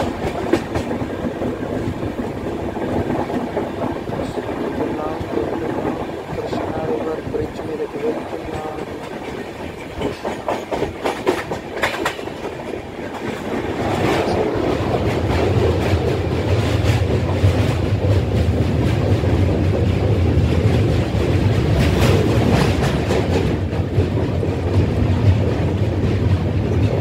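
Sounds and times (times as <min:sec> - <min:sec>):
deep rumble of train on bridge: 0:00.0 - 0:27.0
train wheels clicking over rail joints: 0:00.0 - 0:27.0.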